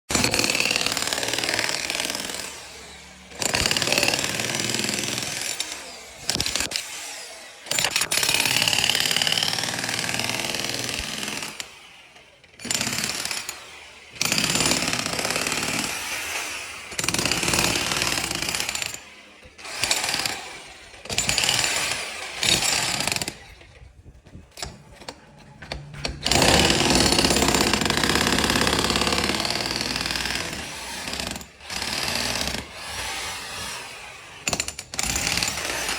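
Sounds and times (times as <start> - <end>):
construction machinery noise: 0.2 - 23.7, 24.5 - 35.9.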